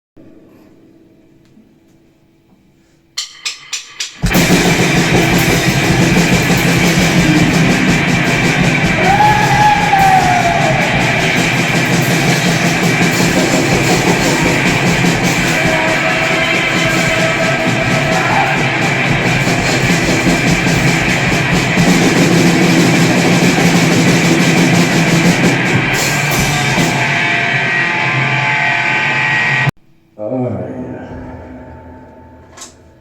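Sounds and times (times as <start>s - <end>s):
drum kit: 3.0s - 29.7s
distorted electric guitar: 4.2s - 29.7s
pitched wail sliding up: 6.8s - 19.8s.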